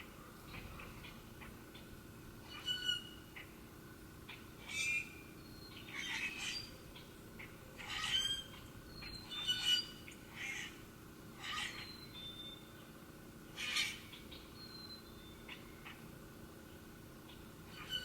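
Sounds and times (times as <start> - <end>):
birds calling: 4.2 - 18.0.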